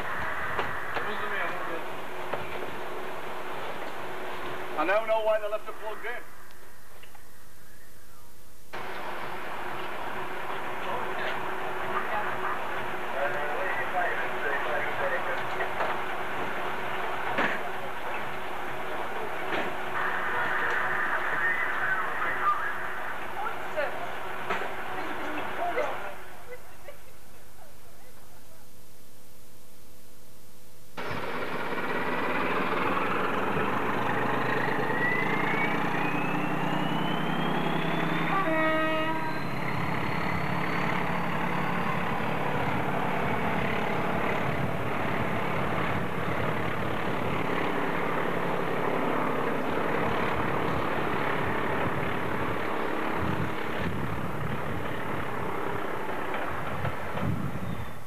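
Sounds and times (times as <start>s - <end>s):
train engine and wheel rumble: 0.0s - 29.1s, 31.0s - 58.0s
train horn toot: 38.2s - 40.2s.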